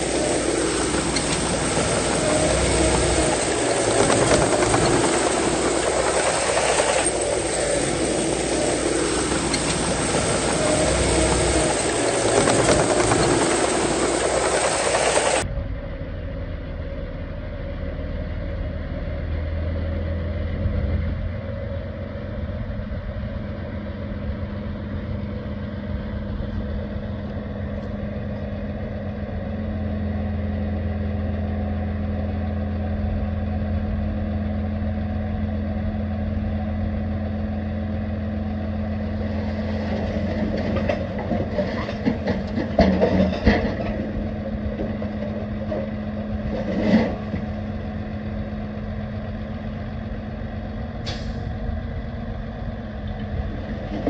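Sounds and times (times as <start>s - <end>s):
loud hissing noise: 0.0s - 15.4s
heavy diesel engine droning: 0.0s - 54.0s
low hum: 0.0s - 54.0s.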